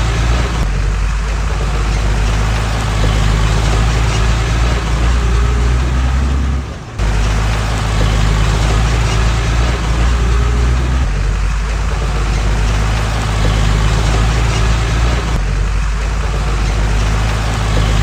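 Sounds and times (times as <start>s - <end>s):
diesel engine of heavy machinery: 0.0s - 18.0s.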